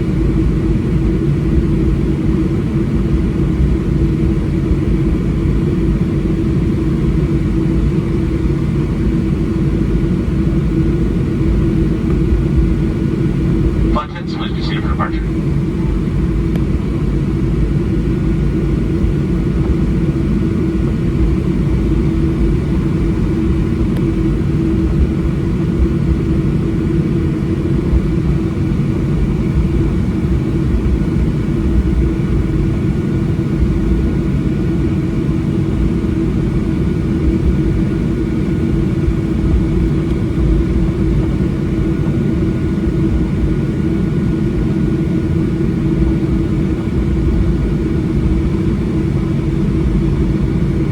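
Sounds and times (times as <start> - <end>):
jet engine rumble in cabin: 0.0 - 50.9
steady hum: 13.4 - 18.2.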